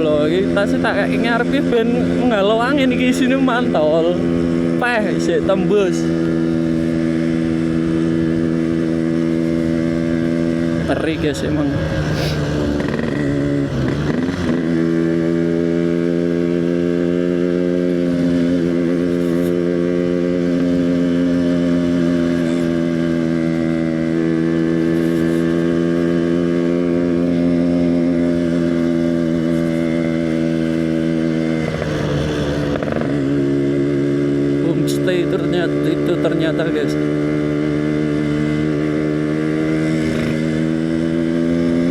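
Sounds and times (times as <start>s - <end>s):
two-stroke motorcycle engine running: 0.0s - 41.9s.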